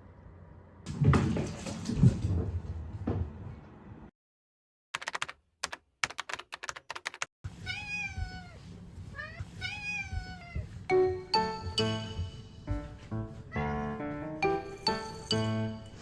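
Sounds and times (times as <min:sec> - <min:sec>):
sharp clicks: 0:05.0 - 0:07.3
cat meowing: 0:07.6 - 0:10.8.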